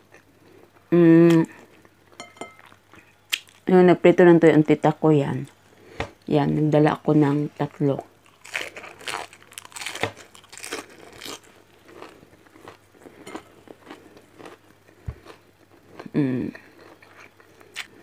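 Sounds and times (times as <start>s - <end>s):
person chewing crunchy food: 8.2s - 18.0s.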